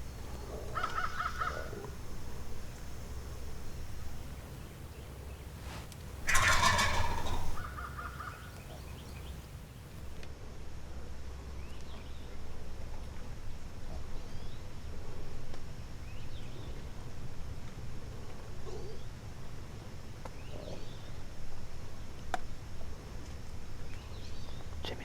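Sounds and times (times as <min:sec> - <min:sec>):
turkey gobbling: 0:00.0 - 0:09.6
small birds chirping: 0:00.0 - 0:10.2.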